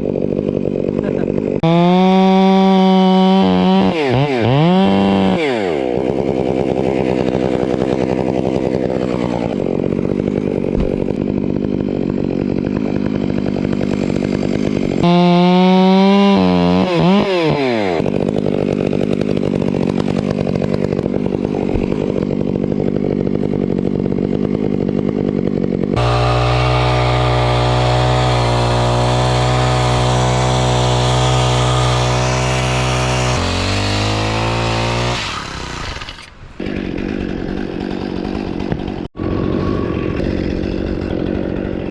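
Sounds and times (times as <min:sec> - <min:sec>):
chainsaw revving: 0:00.0 - 0:41.9
steady engine note: 0:14.8 - 0:18.1, 0:26.0 - 0:35.8.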